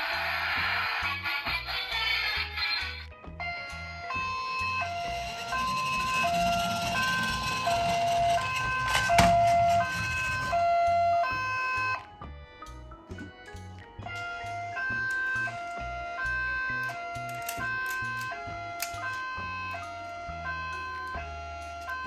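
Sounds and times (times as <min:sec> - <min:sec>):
two-tone ambulance siren: 0:03.4 - 0:12.3, 0:14.1 - 0:22.0
background music with low beat: 0:09.5 - 0:22.0.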